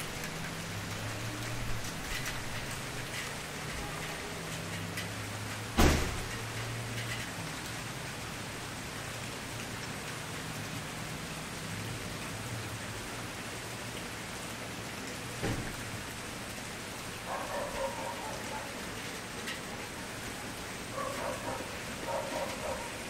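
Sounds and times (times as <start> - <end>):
sharp pop from fire: 5.8 - 6.2.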